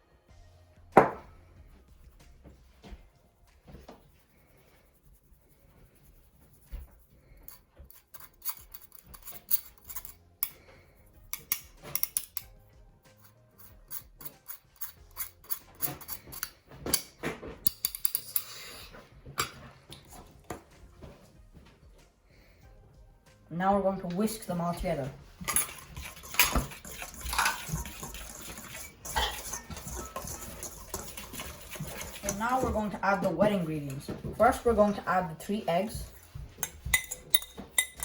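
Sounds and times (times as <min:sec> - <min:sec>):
spoon scraping and clinking bowl: 0:07.4 - 0:10.7, 0:11.3 - 0:12.5, 0:13.1 - 0:17.0, 0:17.7 - 0:18.7, 0:25.4 - 0:33.6, 0:36.0 - 0:38.0.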